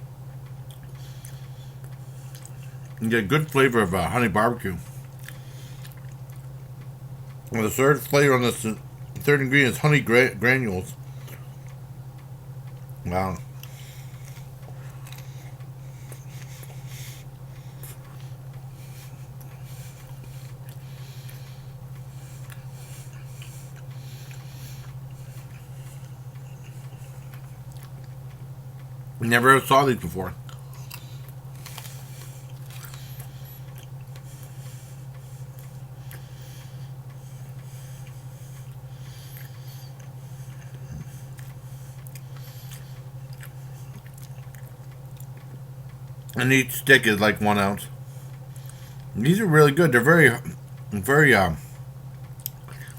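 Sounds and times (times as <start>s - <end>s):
low electrical hum: 0.0s - 52.9s
person chewing meat snack: 0.3s - 3.0s, 4.8s - 7.5s, 12.7s - 29.2s, 30.4s - 46.4s, 48.1s - 49.2s
wet mouth clicks: 52.4s - 52.9s.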